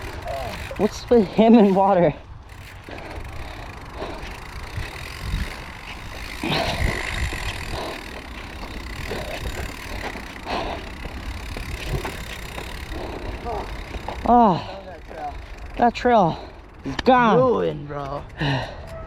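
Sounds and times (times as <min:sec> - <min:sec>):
bike clattering over rocks: 0:00.0 - 0:15.9
bike tyres rumbling on trail: 0:00.0 - 0:18.9
wind on microphone: 0:04.0 - 0:08.1.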